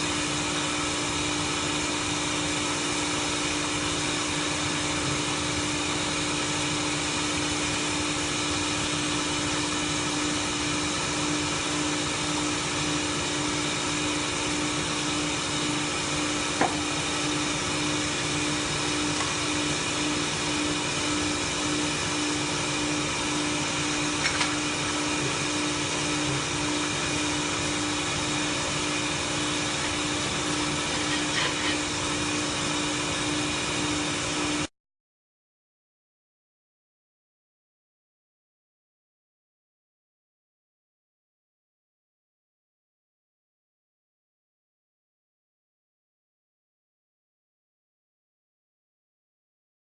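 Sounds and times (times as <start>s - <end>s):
welding machine humming and hissing: 0.0s - 34.7s.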